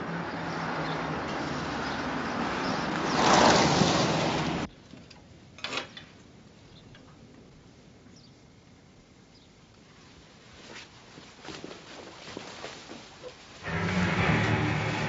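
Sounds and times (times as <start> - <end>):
car driving at speed: 13.6 - 15.0.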